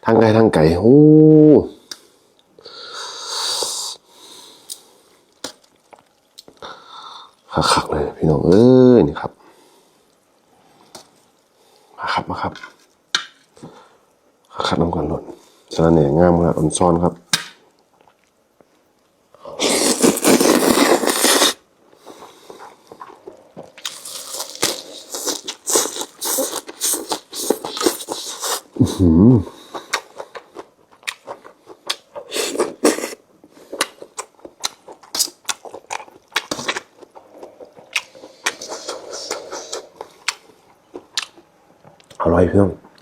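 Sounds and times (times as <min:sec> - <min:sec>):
wet chewing and crunching: 0:04.7 - 0:06.6, 0:19.6 - 0:28.8, 0:29.7 - 0:42.2
loud slurp: 0:19.5 - 0:21.6, 0:37.7 - 0:40.0
person humming mmm: 0:28.8 - 0:29.6
mouth clicks and smacks: 0:33.8 - 0:42.2.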